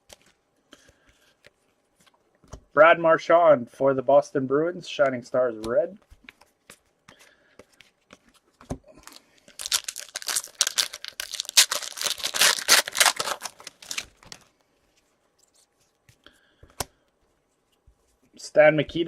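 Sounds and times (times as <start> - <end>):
foil wrapper tearing and crinkling: 9.0 - 14.5.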